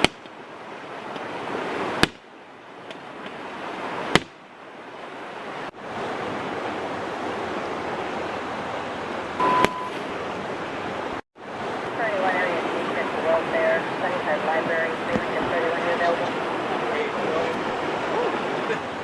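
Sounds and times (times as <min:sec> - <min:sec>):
rushing floodwater: 0:00.0 - 0:19.0
short beep: 0:09.4 - 0:10.0.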